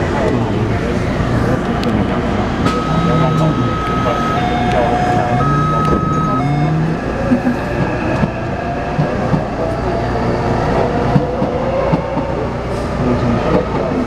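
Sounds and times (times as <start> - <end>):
train rumble: 0.0 - 14.0
rising whine: 0.4 - 8.9
inverter tones: 2.0 - 7.2.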